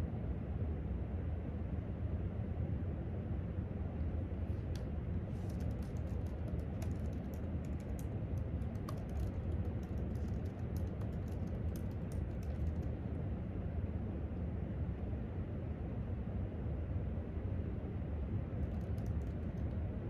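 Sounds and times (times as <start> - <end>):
laptop keyboard typing: 4.5 - 13.0, 18.6 - 19.8.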